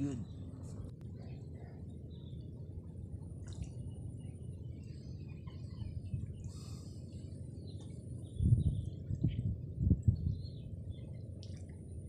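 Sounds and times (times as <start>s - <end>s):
steady low rumble: 0.0s - 12.0s
faint bird chirps: 3.8s - 11.3s.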